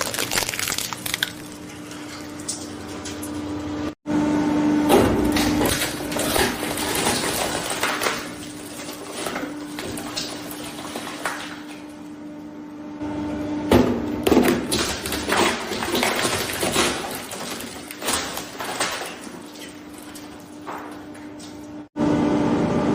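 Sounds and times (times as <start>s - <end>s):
plastic cracking and crunching: 0.0s - 2.2s, 14.4s - 21.1s.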